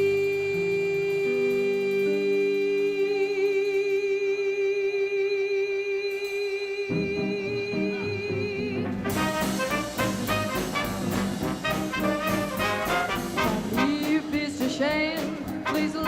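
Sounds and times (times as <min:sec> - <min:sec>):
woman singing with vibrato: 0:00.0 - 0:09.0, 0:13.6 - 0:16.0
swing band playing: 0:06.9 - 0:16.0
horns playing: 0:09.0 - 0:14.3.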